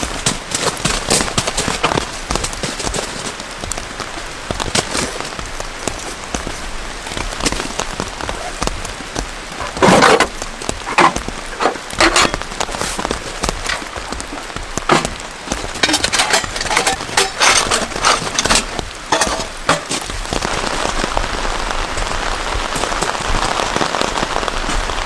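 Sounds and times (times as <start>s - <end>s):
heavy rain falling: 0.0s - 25.0s
knocks and clatters: 9.6s - 20.5s.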